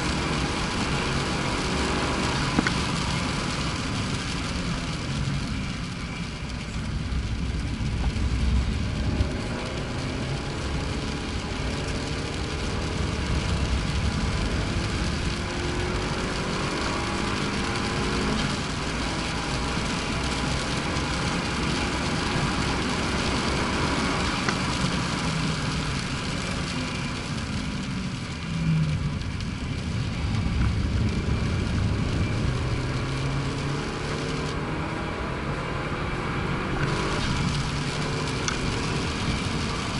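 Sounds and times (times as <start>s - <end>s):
road and wind noise: 0.0s - 39.9s
car engine revving hard: 8.4s - 26.5s, 32.0s - 39.9s.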